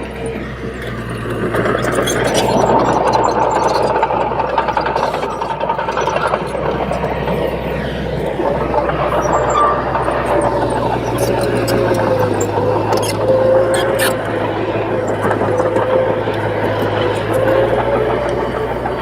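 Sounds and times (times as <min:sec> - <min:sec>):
diesel engine humming: 0:00.0 - 0:19.0
thin squealing tone: 0:01.7 - 0:19.0.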